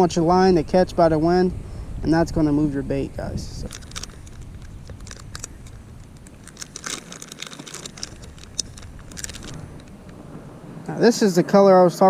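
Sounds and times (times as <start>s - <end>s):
plastic bag crinkling: 3.6s - 10.2s.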